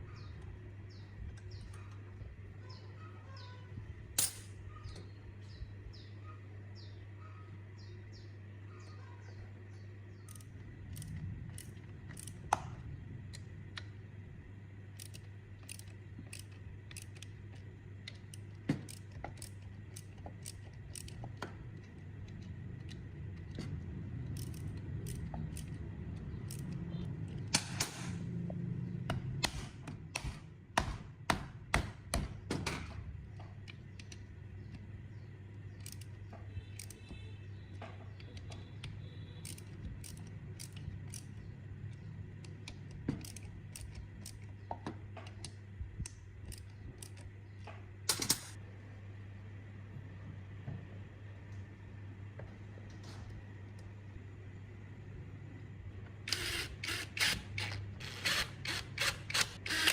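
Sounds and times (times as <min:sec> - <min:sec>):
steady low hum: 0:00.0 - 0:59.9
metal tools clicking and tapping: 0:15.0 - 0:23.7, 0:35.8 - 0:48.6.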